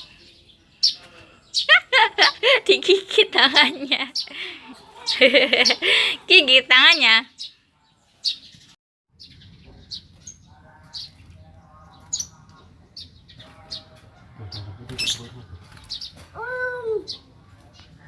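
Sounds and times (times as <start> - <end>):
lovebird chirping: 0.0 - 10.4.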